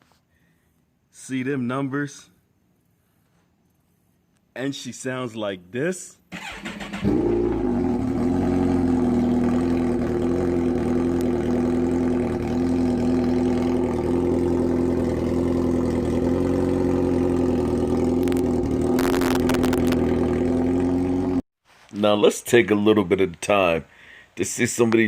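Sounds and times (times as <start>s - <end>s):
motorcycle engine idling: 6.4s - 21.4s
rustling noise: 21.6s - 22.3s.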